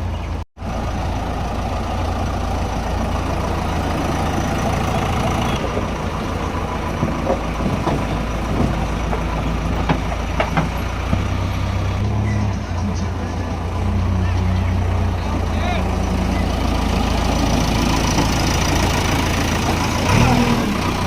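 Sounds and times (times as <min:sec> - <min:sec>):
heavy diesel engine running: 0:00.0 - 0:21.0
knocks and clanks: 0:06.8 - 0:11.6.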